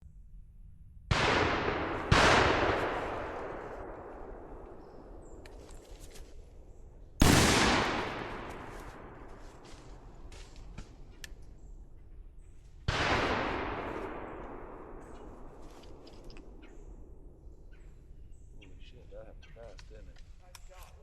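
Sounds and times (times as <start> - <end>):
shotgun shots with echo: 1.1 - 5.4, 7.2 - 10.5, 12.9 - 16.0.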